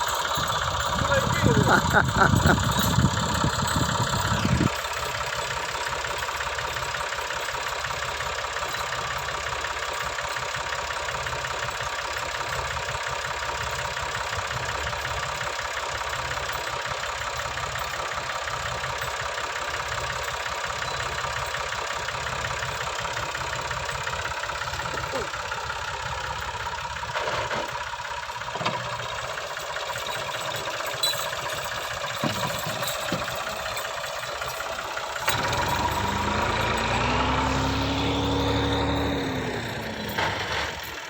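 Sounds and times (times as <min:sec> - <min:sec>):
tractor diesel engine idling: 0:00.0 - 0:41.0.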